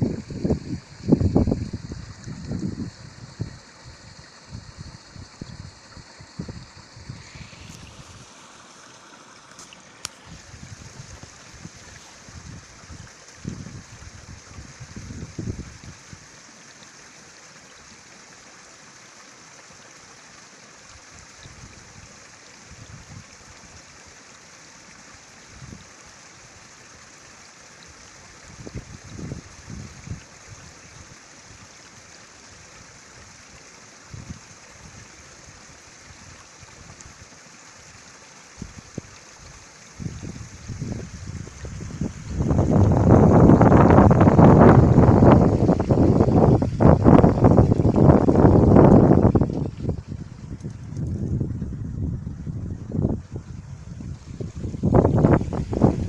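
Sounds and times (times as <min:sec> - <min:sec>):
wind buffeting microphone: 0:00.0 - 0:08.2, 0:10.2 - 0:16.0, 0:28.5 - 0:30.6, 0:40.0 - 0:56.0
stream running: 0:00.0 - 0:56.0.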